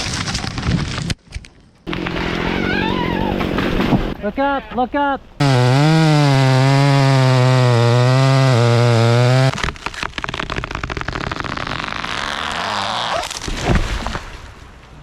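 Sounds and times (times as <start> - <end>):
tree crackling through branches: 1.9 - 4.2, 8.7 - 15.0
tree crashing to ground: 1.9 - 4.2, 5.4 - 14.8
chainsaw at full throttle: 5.4 - 9.6.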